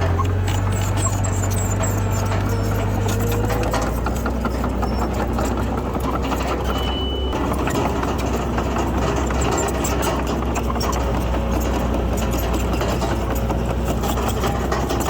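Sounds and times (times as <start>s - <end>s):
bulldozer diesel engine running: 0.0s - 15.0s
clicks and rattles: 0.0s - 15.0s
brief high-pitched tone: 6.7s - 7.4s.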